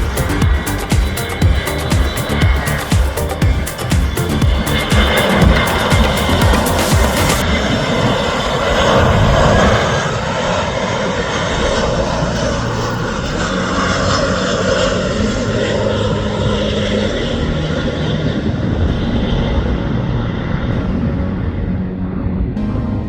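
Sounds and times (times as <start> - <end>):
airliner engines rushing: 0.0 - 22.8.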